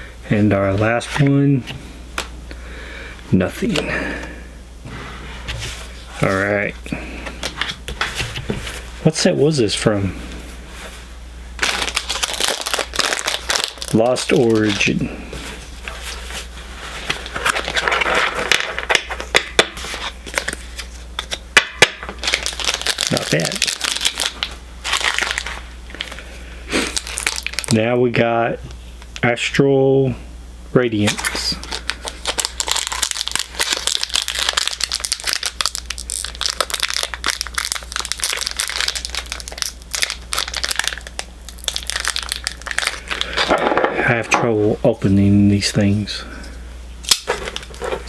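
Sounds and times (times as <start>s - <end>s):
cards and wrapper rustling: 11.6s - 27.8s, 31.0s - 43.7s, 47.1s - 48.0s.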